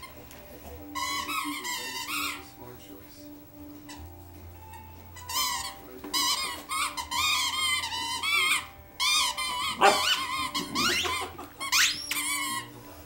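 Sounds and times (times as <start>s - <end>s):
squeaky dog toy squeaking: 0.9s - 2.5s, 4.7s - 12.7s.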